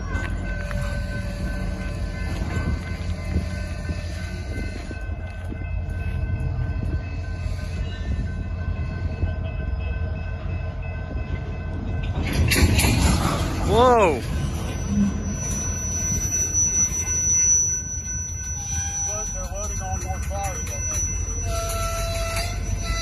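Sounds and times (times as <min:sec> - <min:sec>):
freight train rumble: 0:00.0 - 0:23.0.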